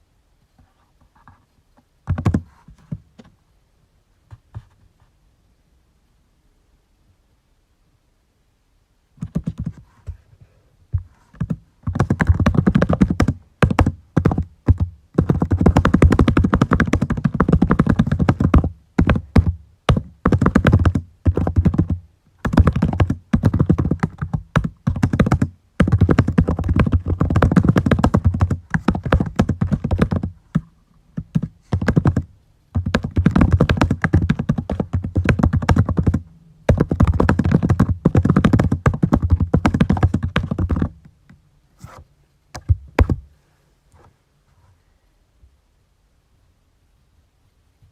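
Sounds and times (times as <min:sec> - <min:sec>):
typing on a computer keyboard: 0:11.4 - 0:30.6, 0:31.2 - 0:32.2, 0:32.8 - 0:41.0.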